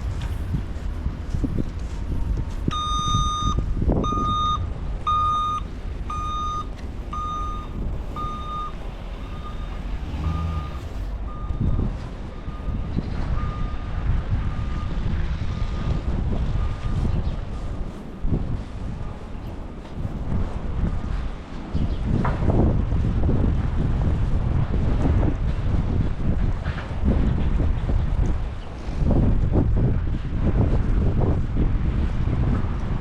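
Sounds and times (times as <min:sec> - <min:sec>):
low street noise rumble: 0:00.0 - 0:33.0
reversing alarm beeping: 0:02.6 - 0:17.8.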